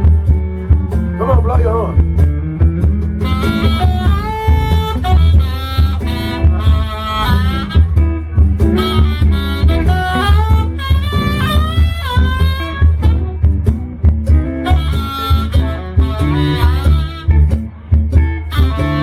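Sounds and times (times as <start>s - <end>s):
bass: 0.0s - 19.0s
drums: 0.0s - 19.0s
wind instrument solo: 3.2s - 19.0s.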